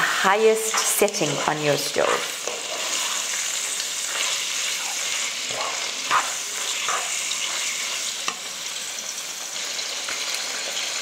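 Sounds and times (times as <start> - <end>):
spoon scraping a wok: 0.0 - 8.7
food sizzling in a wok: 0.0 - 11.0.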